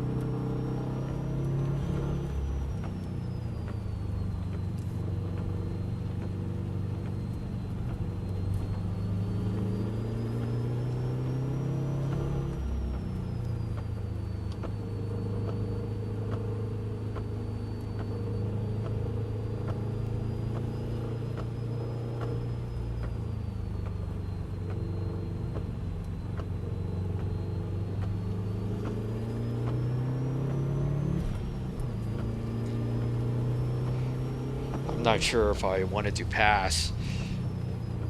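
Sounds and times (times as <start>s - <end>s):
car engine running under load: 0.0s - 38.0s.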